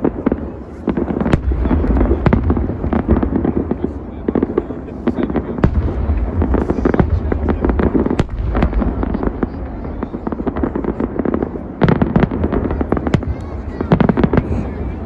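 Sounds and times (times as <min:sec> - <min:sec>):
loud fireworks bangs: 0:00.0 - 0:15.0.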